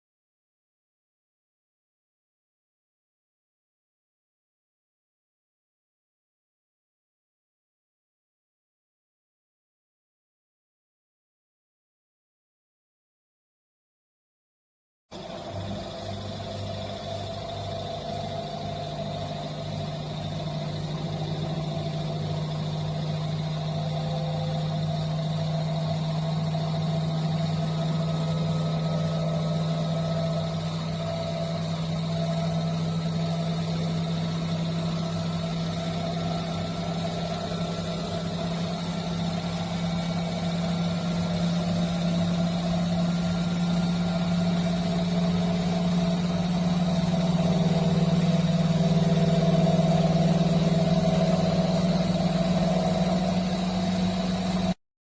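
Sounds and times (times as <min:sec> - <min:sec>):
washing machine motor humming: 0:15.1 - 0:54.8.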